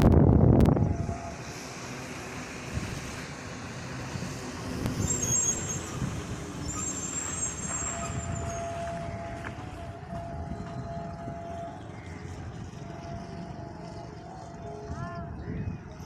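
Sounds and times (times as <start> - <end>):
faint high-pitched whistles: 6.6 - 16.0.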